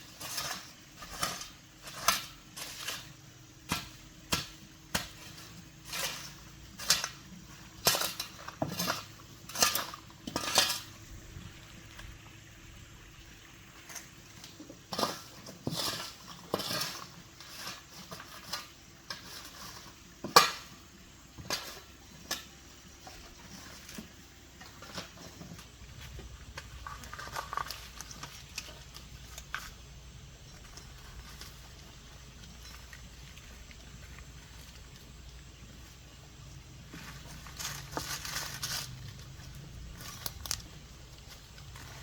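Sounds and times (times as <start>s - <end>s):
small hard objects clinking: 0.0s - 12.2s, 21.4s - 42.0s
faint low hum: 20.8s - 42.0s.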